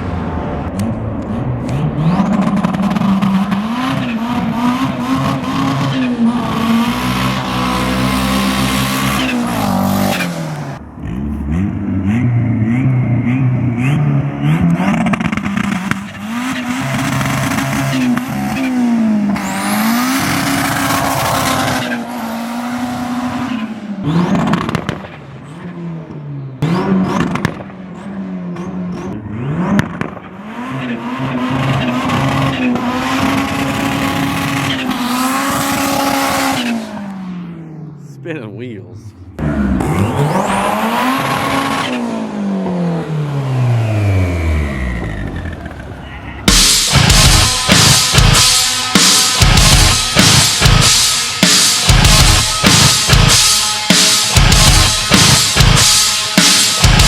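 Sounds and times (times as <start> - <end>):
car engine revving: 0.0 - 57.0
rushing noise: 34.9 - 57.0.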